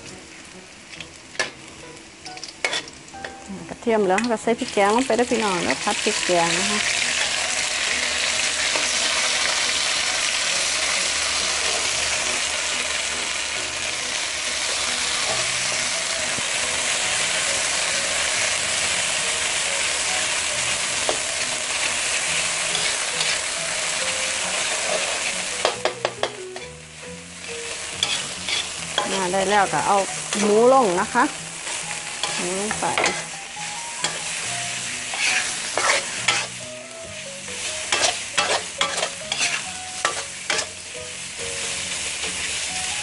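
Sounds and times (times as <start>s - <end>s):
paste sizzling in hot oil: 0.0s - 43.0s
metal spatula scraping pan: 2.6s - 2.9s, 22.7s - 23.4s, 28.0s - 29.3s, 31.6s - 33.3s, 34.0s - 36.6s, 37.8s - 40.8s.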